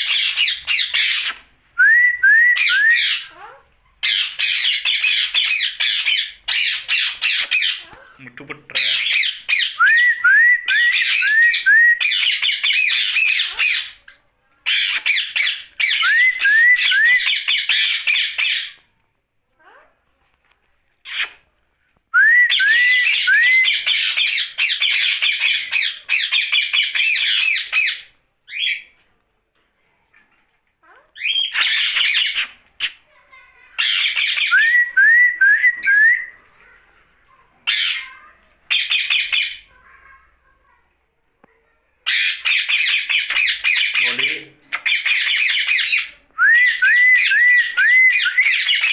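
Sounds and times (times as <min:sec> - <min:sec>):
parakeet squawking and chattering: 0:00.0 - 0:01.5, 0:02.6 - 0:10.0, 0:10.7 - 0:16.4, 0:17.0 - 0:18.8, 0:21.0 - 0:21.5, 0:22.6 - 0:28.9, 0:30.8 - 0:34.8, 0:35.8 - 0:40.7, 0:42.0 - 0:48.9.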